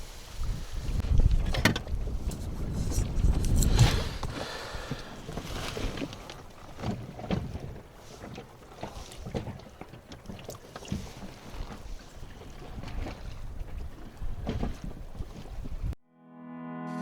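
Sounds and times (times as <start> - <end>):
wind on microphone: 0.0 - 6.3, 11.6 - 16.0
small waves lapping against hull: 0.0 - 16.0.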